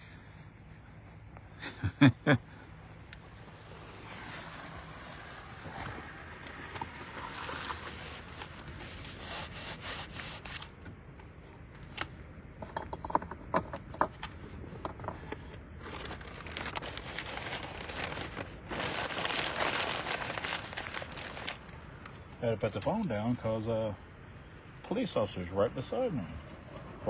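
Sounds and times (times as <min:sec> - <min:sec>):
phone rubbing against microphone: 0:00.0 - 0:01.3, 0:05.6 - 0:06.2
vehicle rumble on road: 0:00.0 - 0:09.1.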